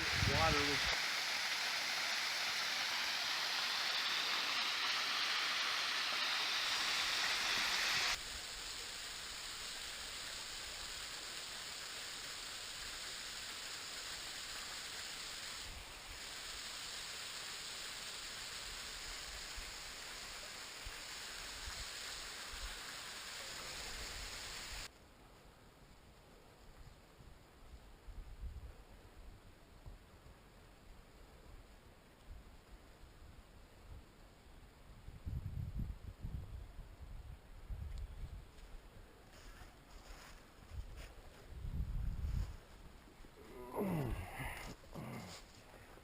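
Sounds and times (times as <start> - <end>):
small waterfall splashing: 0.0 - 24.9.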